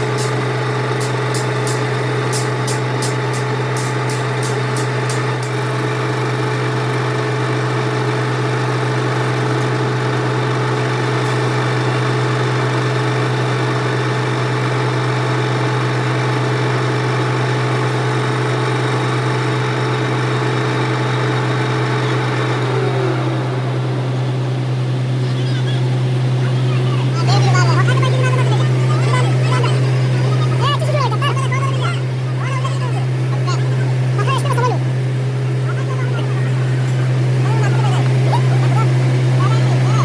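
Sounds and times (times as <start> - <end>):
metal lathe humming: 0.0 - 7.6, 18.7 - 32.4
sharp ticks: 1.0 - 5.5.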